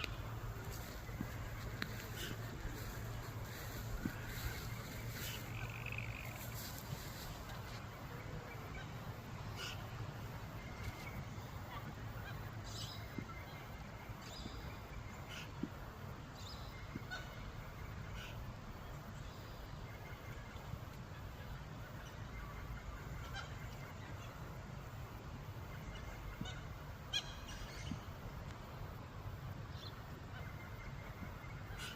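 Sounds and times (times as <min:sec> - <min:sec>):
magpies calling: 0:00.0 - 0:07.4.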